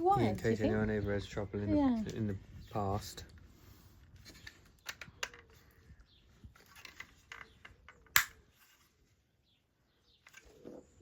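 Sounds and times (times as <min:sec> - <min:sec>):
small parts clicking and rustling: 0:04.1 - 0:08.9.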